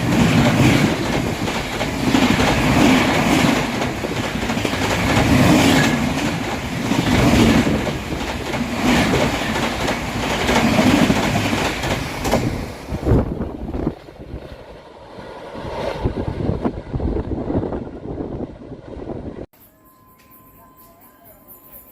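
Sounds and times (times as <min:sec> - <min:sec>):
train wheels clattering over rail joints: 0:00.0 - 0:12.6.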